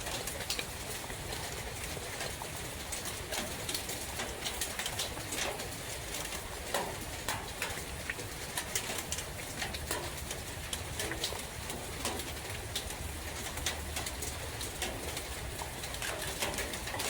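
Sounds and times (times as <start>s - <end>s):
raindrops tapping: 0.0s - 17.0s.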